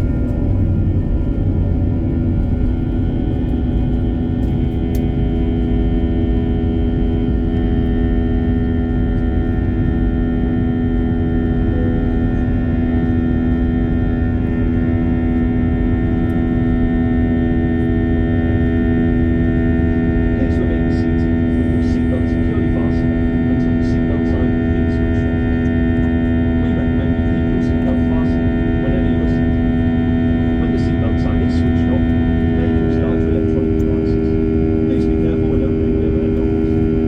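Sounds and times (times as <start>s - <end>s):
airliner cabin drone: 0.0s - 37.0s
constant tonal hum: 0.0s - 37.0s.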